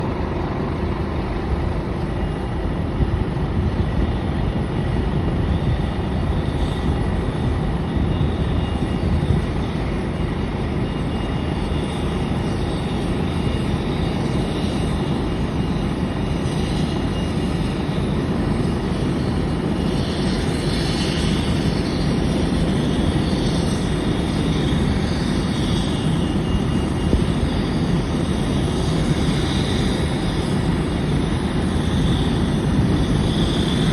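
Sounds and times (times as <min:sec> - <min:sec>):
airliner engine rumble: 0:00.0 - 0:33.9
faint high whine: 0:00.0 - 0:33.9.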